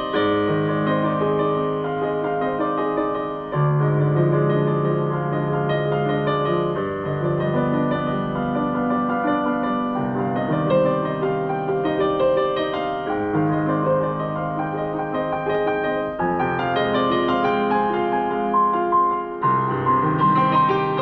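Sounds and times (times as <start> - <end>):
solo piano: 0.0 - 21.0.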